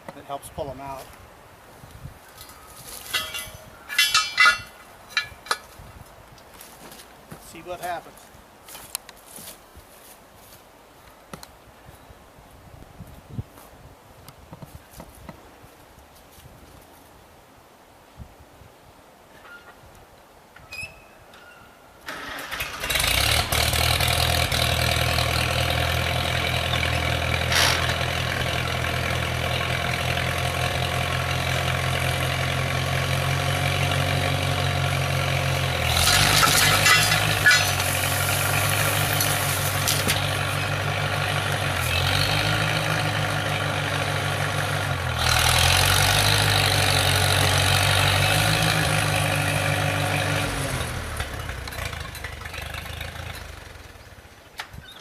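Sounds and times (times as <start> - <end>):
engine rattling: 3.1 - 5.6, 22.1 - 54.5
tractor engine running: 3.1 - 5.6, 22.1 - 54.5.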